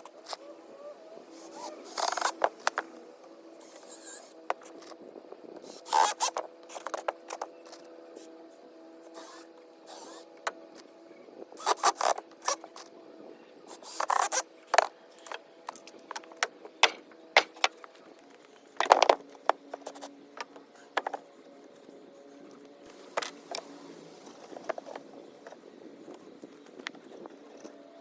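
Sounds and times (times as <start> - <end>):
scraping bursts: 1.3 - 2.9, 5.6 - 8.3, 11.6 - 12.8, 13.7 - 14.5.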